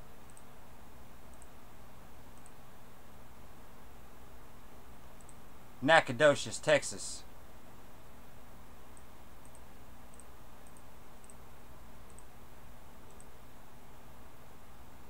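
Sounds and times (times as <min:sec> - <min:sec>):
low background hum and hiss: 0:00.0 - 0:15.0
faint irregular clicks: 0:00.2 - 0:00.5, 0:01.3 - 0:01.6, 0:02.3 - 0:02.6, 0:05.2 - 0:05.4, 0:08.9 - 0:12.4, 0:13.0 - 0:13.4.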